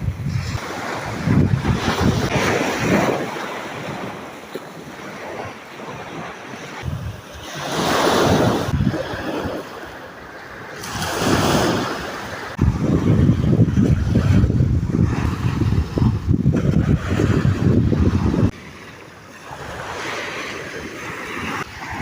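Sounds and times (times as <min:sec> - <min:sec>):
wind buffeting microphone: 0:00.0 - 0:09.7, 0:10.8 - 0:18.6
sea waves washing in: 0:00.0 - 0:22.0.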